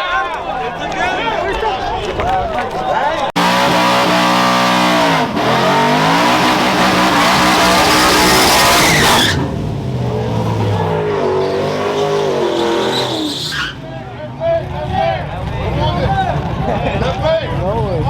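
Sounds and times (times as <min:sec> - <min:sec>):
truck engine at high revs: 0:03.3 - 0:18.0
tyre squeal: 0:06.3 - 0:09.5, 0:10.5 - 0:13.9.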